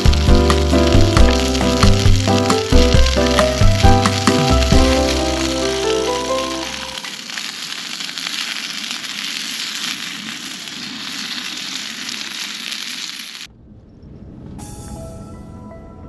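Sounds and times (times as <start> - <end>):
soft music: 0.0 - 7.1, 14.6 - 16.0
food sizzling in a pan: 0.0 - 13.5.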